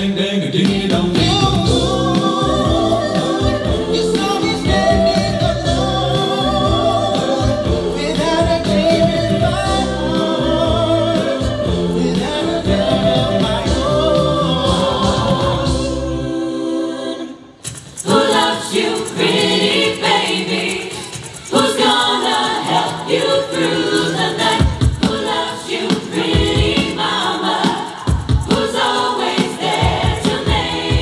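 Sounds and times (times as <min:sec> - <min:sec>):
vocal group singing in harmony: 0:00.0 - 0:31.0
pulsing bass line: 0:00.9 - 0:16.3.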